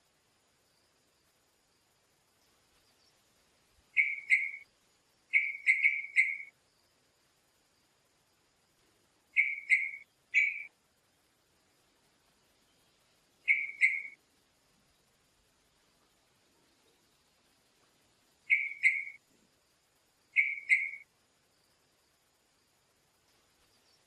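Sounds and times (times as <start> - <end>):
bird whistled calls: 4.0 - 4.6, 5.3 - 6.5, 9.4 - 10.7, 13.5 - 14.2, 18.5 - 19.2, 20.4 - 21.0.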